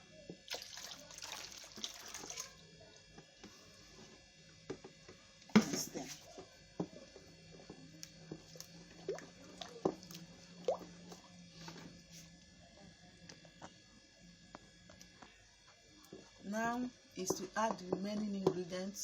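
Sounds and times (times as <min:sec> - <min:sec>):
drips: 0:09.0 - 0:10.9.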